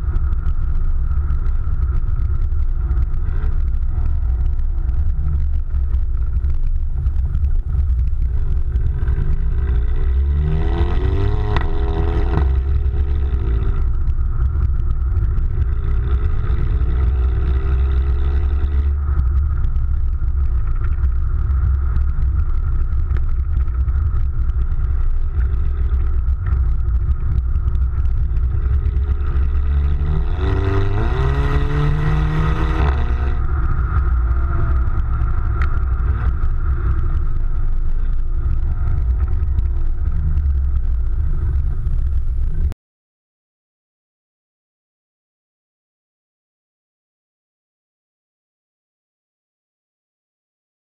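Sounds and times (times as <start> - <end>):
car exhaust drone revving: 0.0 - 42.8.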